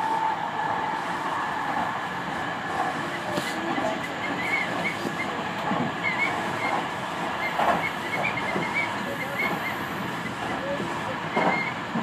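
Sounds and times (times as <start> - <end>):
train wheels rumbling on rail: 0.0 - 12.0
short high wheel squeaks: 4.0 - 5.4, 6.0 - 10.4, 11.3 - 11.8.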